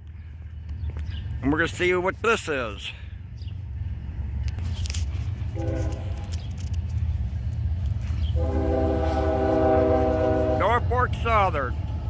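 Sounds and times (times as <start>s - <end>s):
locomotive horn blasts: 5.5s - 6.4s, 8.3s - 11.0s.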